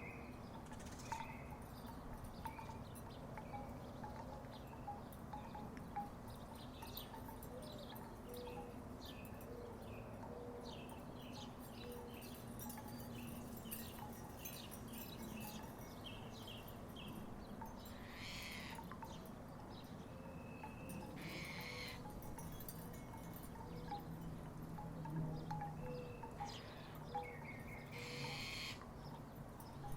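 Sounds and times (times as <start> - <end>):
wooden wind chimes knocking: 0.5 - 29.9.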